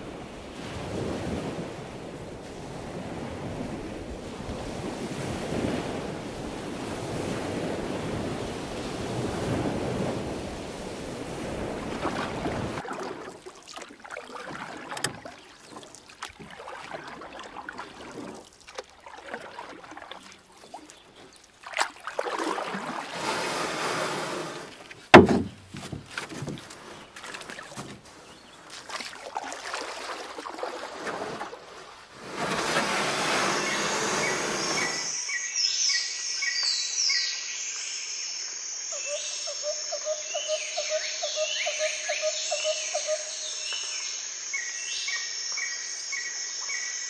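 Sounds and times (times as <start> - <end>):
wind buffeting microphone: 0.0 - 12.8
sharp knock: 25.1 - 25.6.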